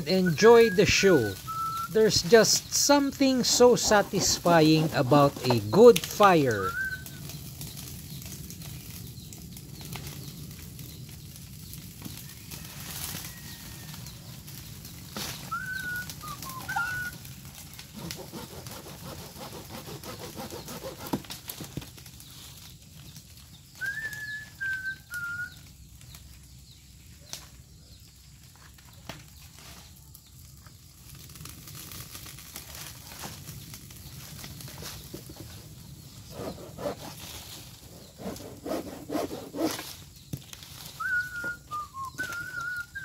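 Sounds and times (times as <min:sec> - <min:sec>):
bird whistling: 0:00.0 - 0:02.0, 0:06.4 - 0:07.2, 0:15.4 - 0:17.2, 0:23.8 - 0:25.6, 0:41.0 - 0:43.0
branches knocking and cracking: 0:15.1 - 0:22.6, 0:31.6 - 0:42.8.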